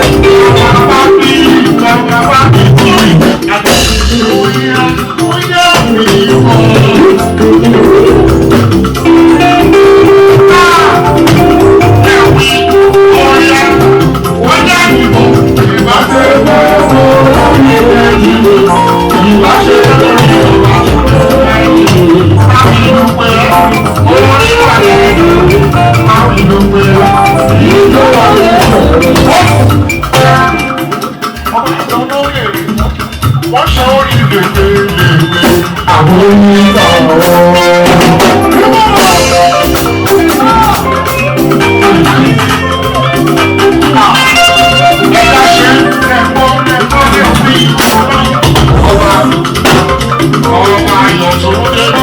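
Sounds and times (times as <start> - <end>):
drums and shakers beat: 0.0 - 52.0
loud band music: 0.0 - 52.0
person singing: 0.0 - 52.0
horn lines: 43.2 - 48.3.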